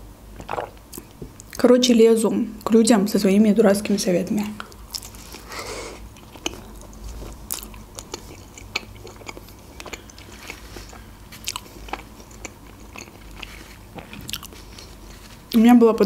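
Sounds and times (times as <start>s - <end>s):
chewing with soft crunches: 4.4s - 16.0s.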